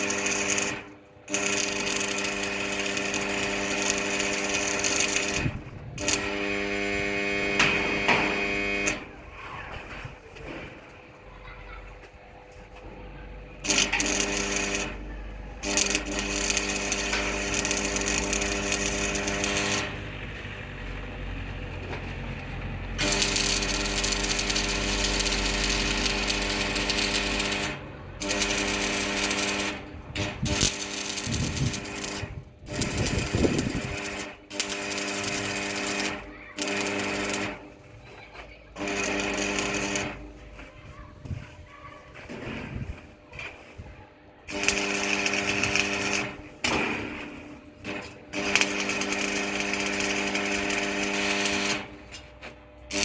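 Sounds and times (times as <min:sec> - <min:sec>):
power tool motor running: 0:00.0 - 0:09.1, 0:13.5 - 0:38.0, 0:38.7 - 0:40.7, 0:44.5 - 0:53.0.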